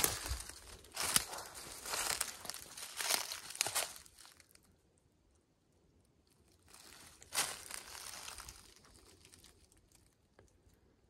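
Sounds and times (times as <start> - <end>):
footsteps crunching dry leaves: 0.0 - 4.5, 6.7 - 9.5.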